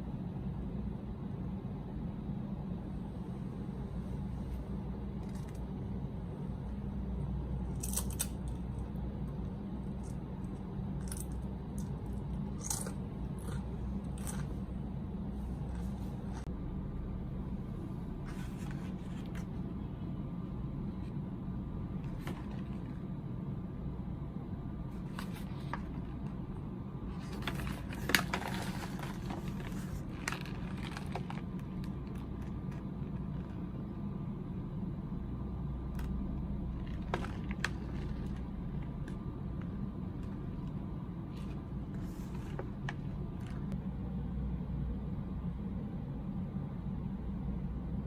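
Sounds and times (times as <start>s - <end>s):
steady low hum: 0.0s - 48.0s
snack packaging crinkling: 27.2s - 32.8s.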